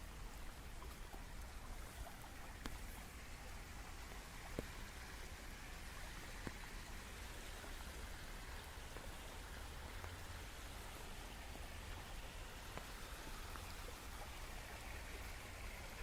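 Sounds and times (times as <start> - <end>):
raindrop ticks: 2.5 - 2.9.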